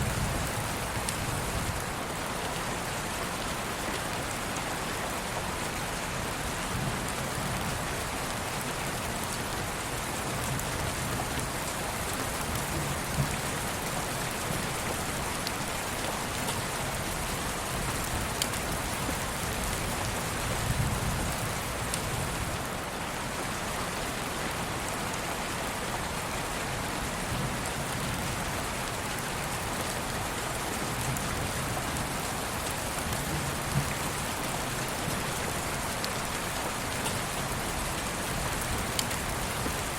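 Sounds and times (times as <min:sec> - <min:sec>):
steady rain hiss: 0:00.0 - 0:39.9
raindrop ticks: 0:17.8 - 0:19.8, 0:38.4 - 0:39.9.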